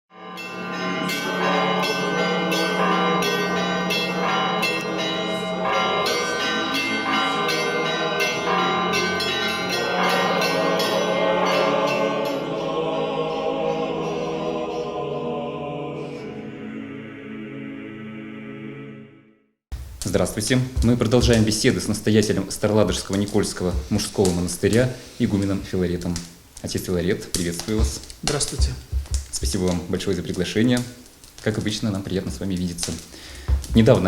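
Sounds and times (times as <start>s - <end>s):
church bells ringing a peal: 0.1s - 15.0s.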